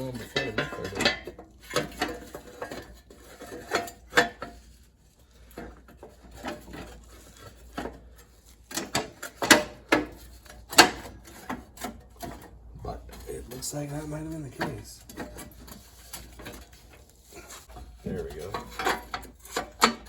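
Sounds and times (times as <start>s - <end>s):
sheet metal clinking and clanking: 0.0s - 4.7s, 8.7s - 20.0s.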